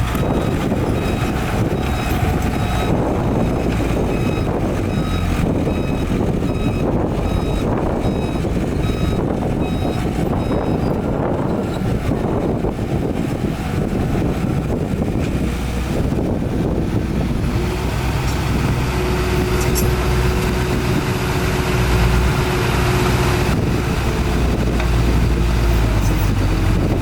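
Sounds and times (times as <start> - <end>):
diesel engine rumble: 0.0 - 27.0
reversing alarm beeping: 0.1 - 11.8.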